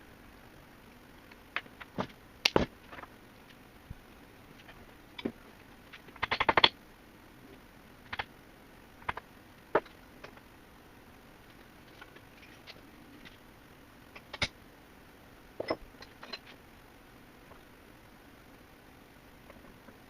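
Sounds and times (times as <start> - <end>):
clicks and knocks of metal parts: 14.1 - 14.6.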